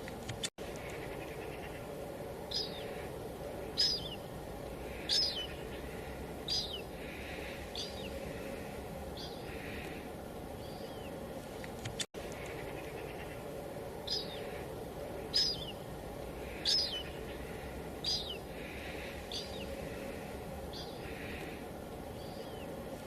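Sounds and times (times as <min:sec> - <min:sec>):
bird chirping: 0:00.7 - 0:11.2, 0:12.2 - 0:22.8.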